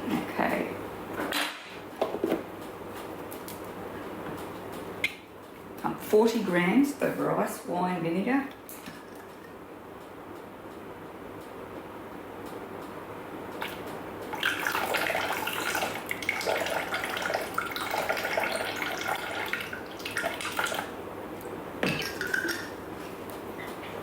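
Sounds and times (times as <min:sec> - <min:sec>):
liquid pouring and splashing: 0:13.6 - 0:21.0, 0:21.8 - 0:22.8.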